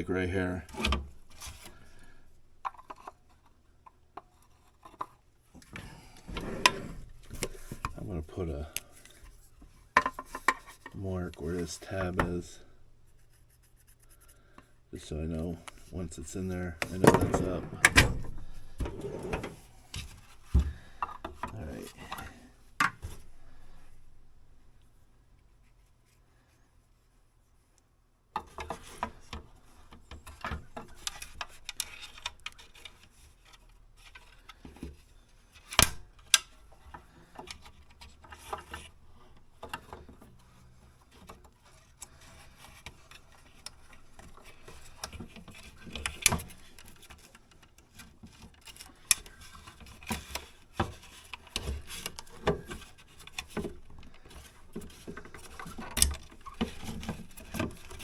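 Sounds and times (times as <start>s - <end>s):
handling clicks taps and rubbing: 6.6s - 24.1s.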